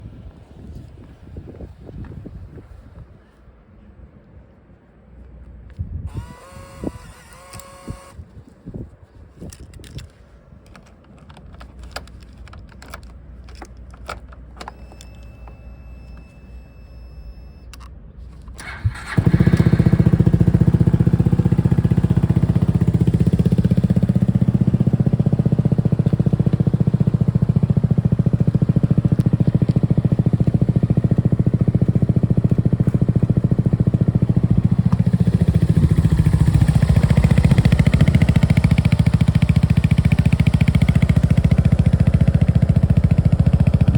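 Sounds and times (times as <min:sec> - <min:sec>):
scooter engine idling: 0:18.6 - 0:43.9.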